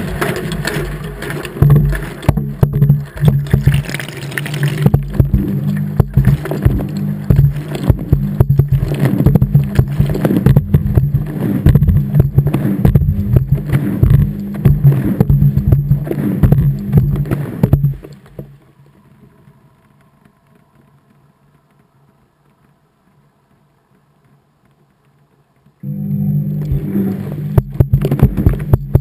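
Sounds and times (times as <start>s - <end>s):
washing machine motor hum: 0.0s - 18.0s, 25.8s - 29.0s
wet load knocking and sloshing: 0.1s - 18.5s.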